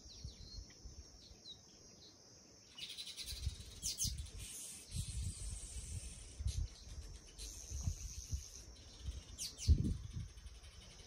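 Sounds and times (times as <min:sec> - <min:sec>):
birds chirping: 0:00.0 - 0:11.0
high hiss: 0:02.8 - 0:10.9.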